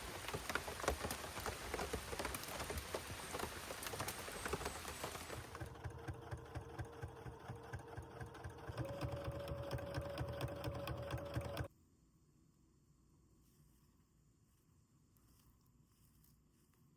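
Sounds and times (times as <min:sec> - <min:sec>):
small motor ticking and humming: 0:03.9 - 0:11.7.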